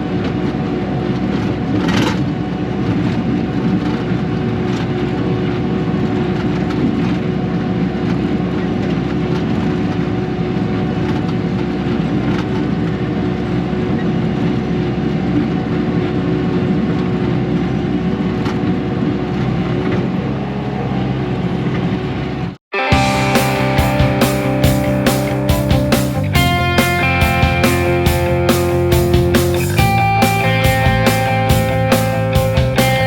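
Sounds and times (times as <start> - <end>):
steady whine: 22.9 - 33.0
diesel engine running: 23.0 - 33.0.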